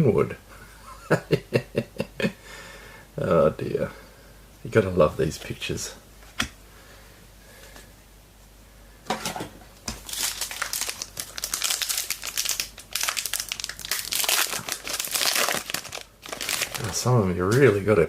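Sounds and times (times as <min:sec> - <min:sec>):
wrapper crinkling and tearing: 0:09.9 - 0:17.7.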